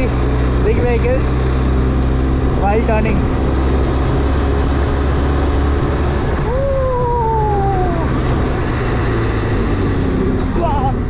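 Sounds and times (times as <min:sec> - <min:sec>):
motorcycle engine running: 0:00.0 - 0:11.0
wind rumble: 0:00.0 - 0:11.0
tone sliding downward in pitch: 0:06.4 - 0:08.4.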